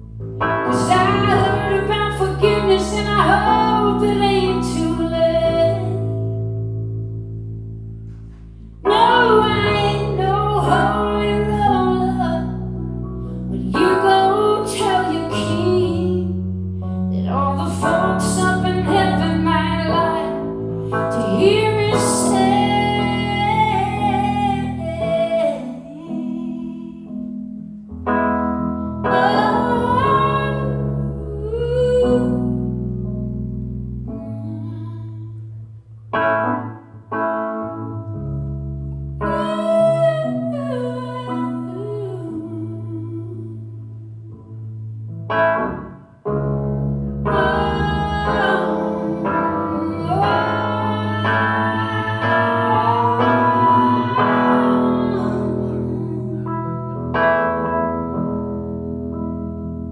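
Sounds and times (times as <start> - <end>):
keyboard chords: 0.0 - 59.9
woman singing wordlessly: 0.7 - 6.4, 8.9 - 12.6, 13.5 - 16.4, 17.2 - 27.3, 29.1 - 32.8, 34.1 - 35.5, 39.2 - 44.0, 47.3 - 56.7.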